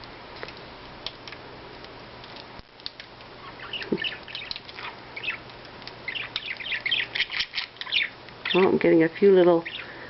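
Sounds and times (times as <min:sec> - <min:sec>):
budgerigars chirping and chattering: 0:03.4 - 0:09.9.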